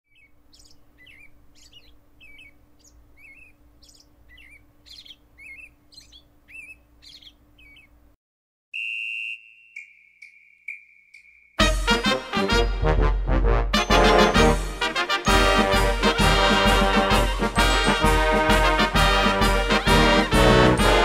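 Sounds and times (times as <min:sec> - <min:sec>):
faint steady hum: 0:00.1 - 0:08.2
small bird chirping: 0:00.1 - 0:08.2, 0:09.2 - 0:11.6.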